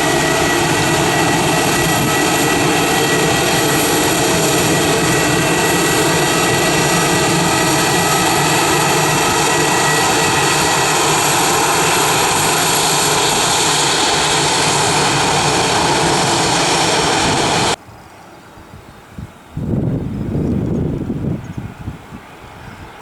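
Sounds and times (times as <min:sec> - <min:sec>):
airliner engines roaring: 0:00.0 - 0:17.8, 0:19.0 - 0:23.0.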